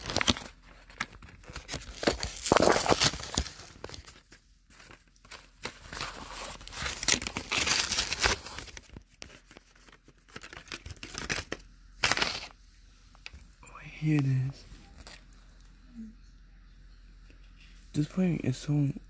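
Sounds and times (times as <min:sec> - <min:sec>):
packaging tearing and rustling: 0:00.0 - 0:12.6, 0:14.8 - 0:15.3.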